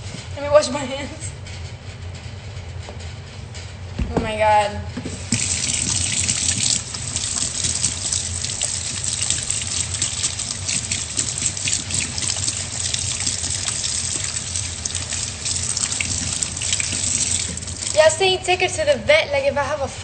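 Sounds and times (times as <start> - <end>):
tap water running into sink: 5.1 - 18.2.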